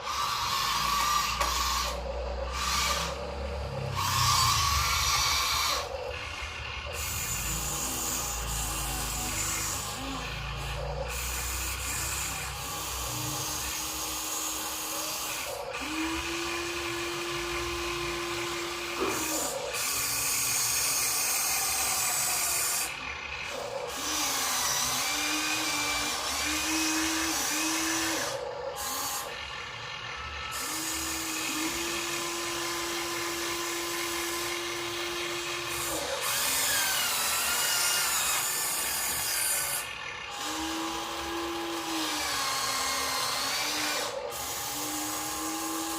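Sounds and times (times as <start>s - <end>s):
small electric motors whining: 0.0s - 45.9s.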